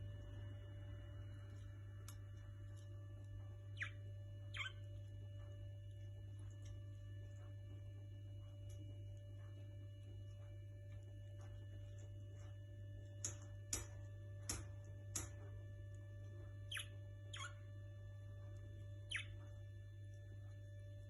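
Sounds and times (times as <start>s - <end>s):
low electrical hum: 0.0s - 21.0s
small birds chirping: 1.4s - 5.7s, 16.4s - 17.7s, 18.6s - 19.6s.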